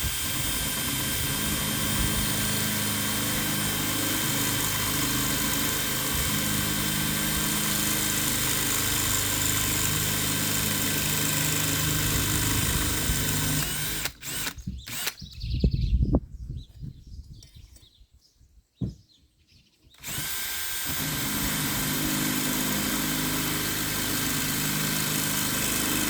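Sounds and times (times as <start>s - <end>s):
electric drill motor whine: 0.0s - 15.4s, 20.0s - 26.0s
handling knocks and thumps: 18.8s - 19.1s.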